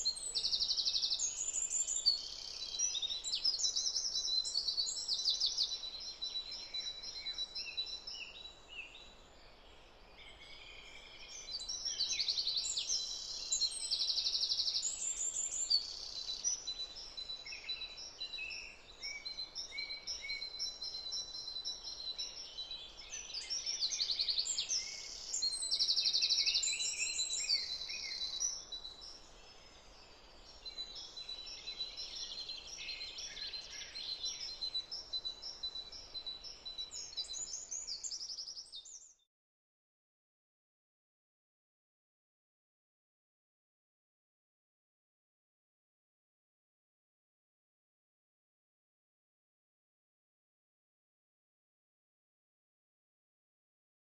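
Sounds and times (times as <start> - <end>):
songbirds chirping and trilling: 0.0 - 39.3.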